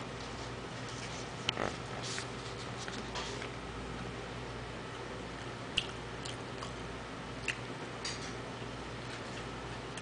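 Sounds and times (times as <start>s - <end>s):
man chewing: 5.4s - 6.8s, 7.4s - 7.8s.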